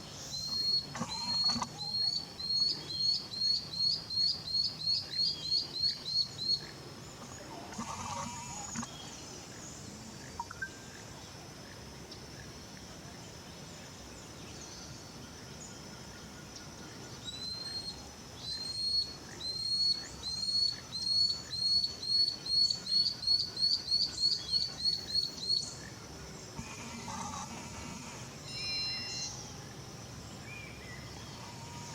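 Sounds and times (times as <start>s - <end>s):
steady high-pitched tone: 26.6s - 29.8s.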